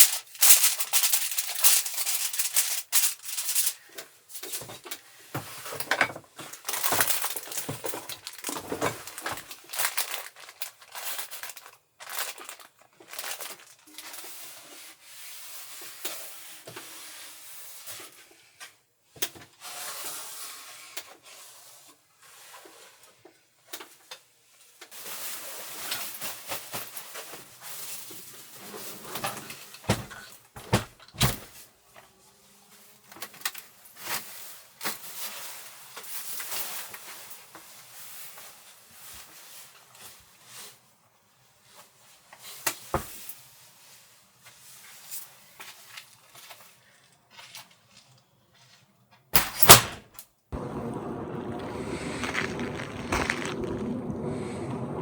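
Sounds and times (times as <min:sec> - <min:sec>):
objects rustling: 0:00.0 - 0:14.4
wind noise: 0:50.6 - 0:55.0.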